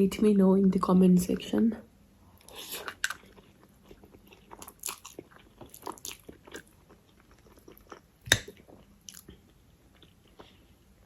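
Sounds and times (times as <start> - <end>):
biting and chewing crunchy food: 2.4 - 11.0.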